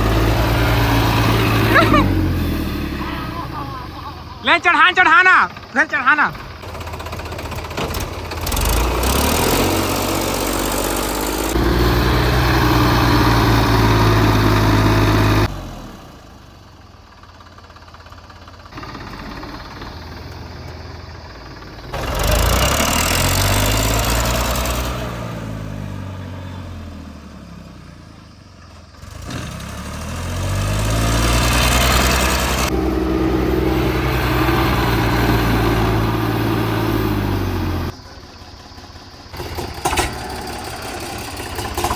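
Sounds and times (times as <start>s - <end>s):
tractor engine labouring: 0.0s - 41.9s.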